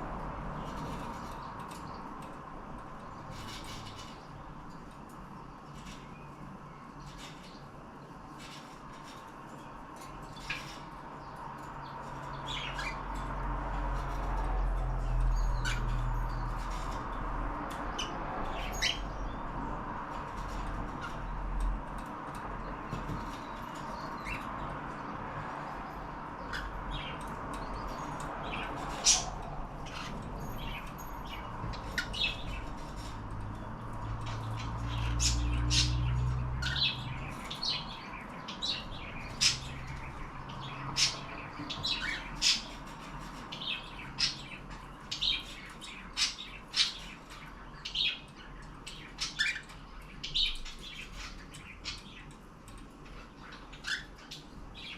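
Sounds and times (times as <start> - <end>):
cockatiels chirping and squawking: 12.3 - 13.2, 17.9 - 19.1, 28.0 - 33.2, 34.1 - 52.4, 53.0 - 54.9.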